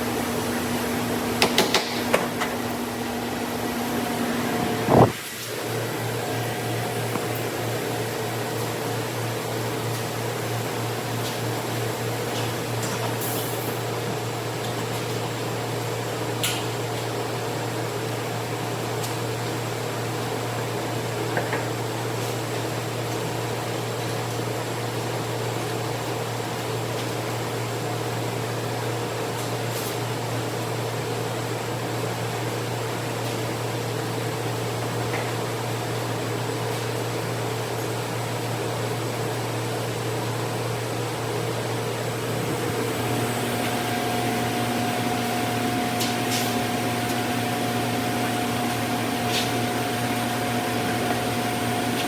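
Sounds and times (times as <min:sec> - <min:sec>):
motor hum: 0:00.0 - 0:05.2.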